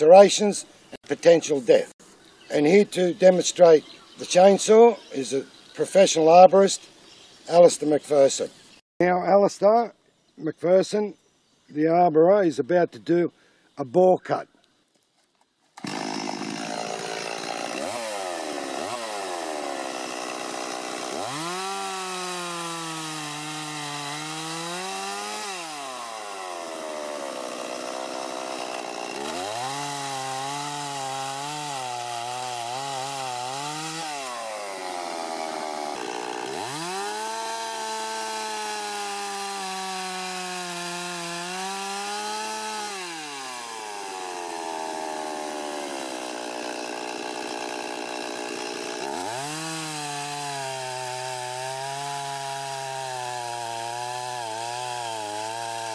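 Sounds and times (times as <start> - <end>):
chainsaw cutting wood: 15.7 - 55.9.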